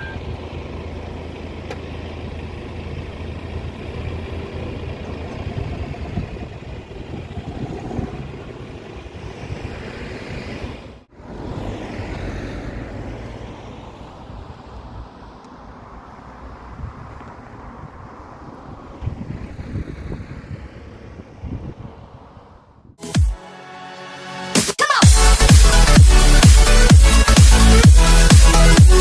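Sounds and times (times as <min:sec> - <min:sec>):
passing vehicle engine drone: 0:00.0 - 0:23.0
wind buffeting microphone: 0:03.4 - 0:11.8, 0:14.0 - 0:23.0.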